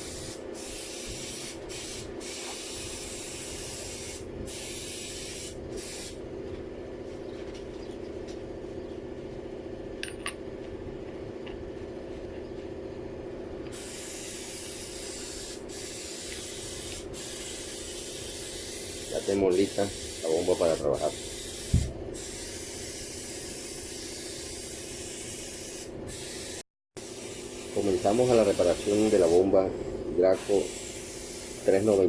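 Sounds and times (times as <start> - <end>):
hiss of paint spray: 0.0 - 6.2, 13.7 - 29.6, 30.2 - 32.0
paint sprayer machine hum: 13.3 - 32.0.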